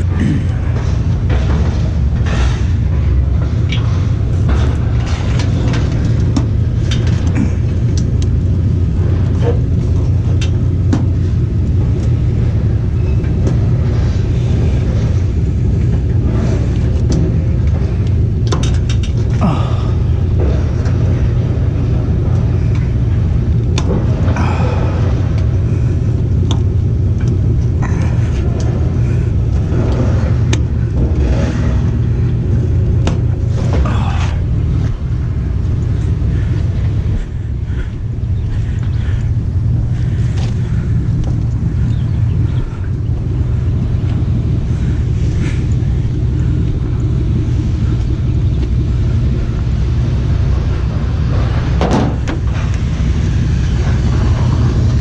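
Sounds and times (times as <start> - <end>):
rattle of clicks: 0.0 - 19.4, 25.1 - 37.2
truck driving rumble: 0.0 - 55.0.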